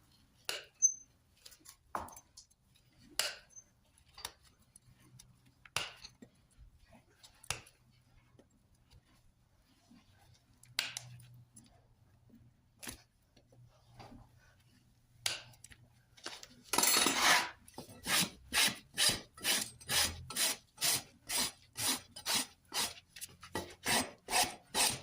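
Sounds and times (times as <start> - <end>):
tools snipping and scraping hoof: 0.4 - 6.6, 7.2 - 7.9, 16.7 - 25.0.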